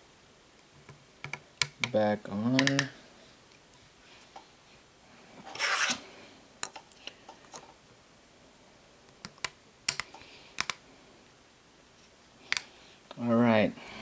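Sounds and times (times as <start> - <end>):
plastic parts clicking: 9.2 - 10.8.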